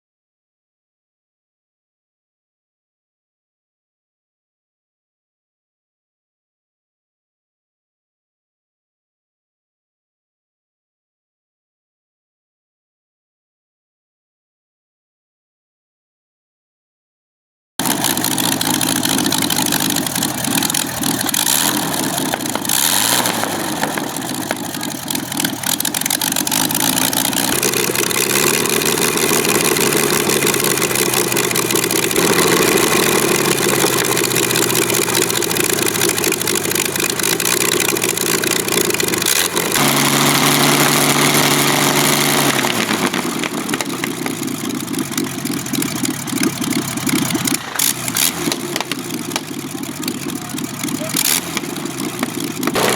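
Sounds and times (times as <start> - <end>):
aircraft engine running: 17.8 - 52.9.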